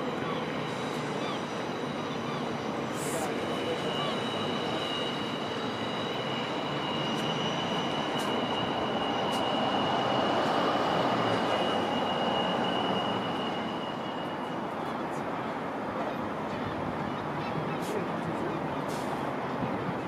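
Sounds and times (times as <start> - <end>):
high wheel squeal: 0.0 - 15.0
train rumbling over tracks: 0.0 - 20.0.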